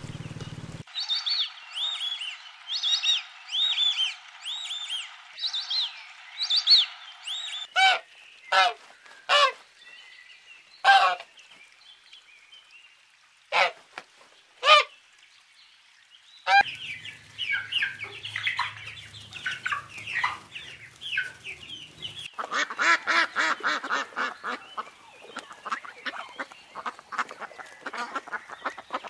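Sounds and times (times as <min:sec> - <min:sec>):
ducklings peeping: 0:00.0 - 0:09.6, 0:16.5 - 0:29.0
geese honking: 0:01.3 - 0:09.6, 0:10.8 - 0:11.3, 0:13.5 - 0:13.8, 0:16.5 - 0:29.0.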